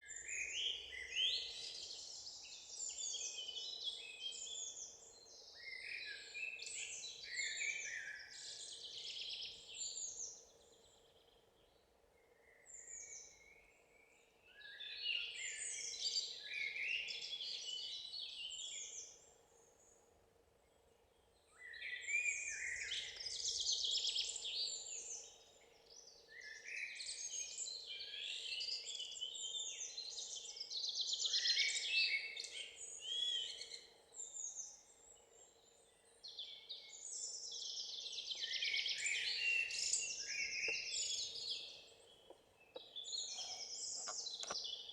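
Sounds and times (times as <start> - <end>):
songbirds singing: 0.0 - 44.9.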